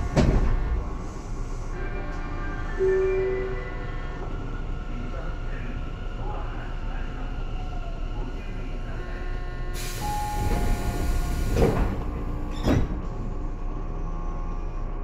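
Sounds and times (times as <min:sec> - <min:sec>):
electric train tones and rumble: 0:00.0 - 0:15.0
hiss: 0:09.8 - 0:11.8.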